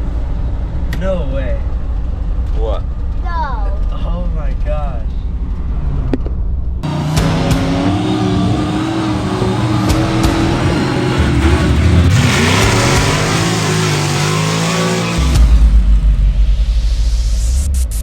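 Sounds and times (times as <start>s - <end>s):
vehicle engine revving: 5.2s - 16.4s.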